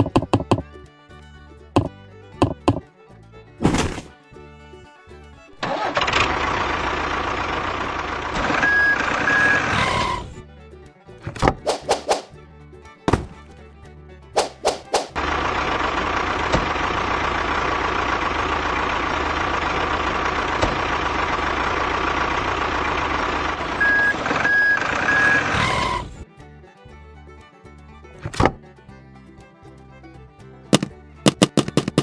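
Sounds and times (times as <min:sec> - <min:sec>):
sharp knocks: 0:00.0 - 0:00.6, 0:13.1 - 0:13.4, 0:14.4 - 0:15.2, 0:30.7 - 0:32.0
truck engine running: 0:00.0 - 0:32.0
reversing beeps: 0:08.6 - 0:09.6, 0:23.8 - 0:25.8.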